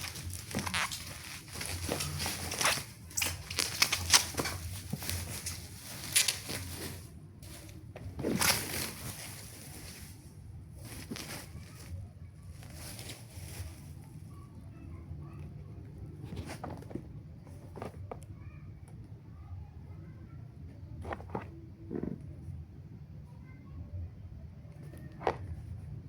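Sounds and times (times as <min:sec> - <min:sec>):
packaging rustling: 0:00.0 - 0:14.0.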